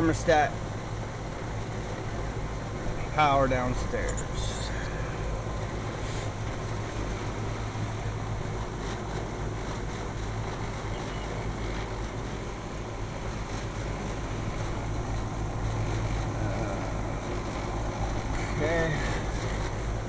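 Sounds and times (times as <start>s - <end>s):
air conditioning unit humming: 0.0s - 20.0s.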